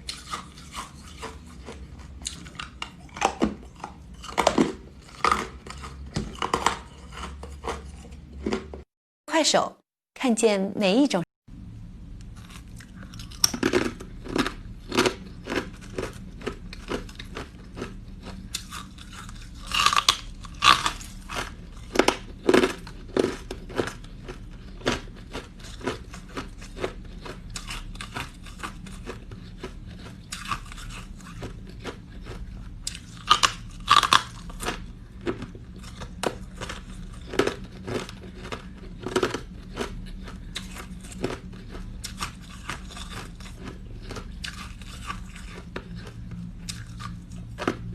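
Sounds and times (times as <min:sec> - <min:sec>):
person crunching ice: 0:18.5 - 0:23.9, 0:33.2 - 0:34.7.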